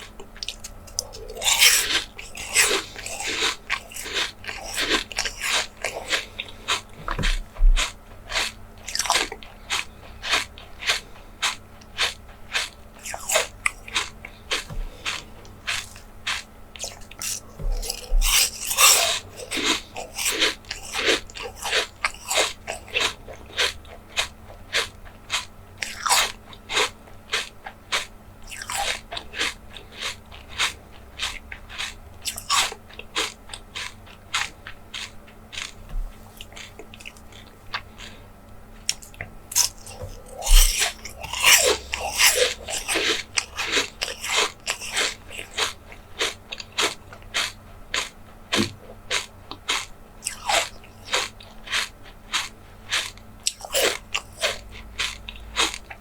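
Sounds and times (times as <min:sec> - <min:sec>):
chewing soft jelly: 0:00.0 - 0:56.0.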